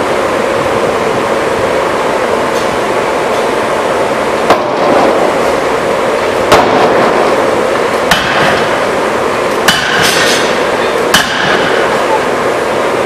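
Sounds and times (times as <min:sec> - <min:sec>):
loud machinery noise: 0:00.0 - 0:13.0
forging hammer banging: 0:08.1 - 0:08.8, 0:09.7 - 0:11.9.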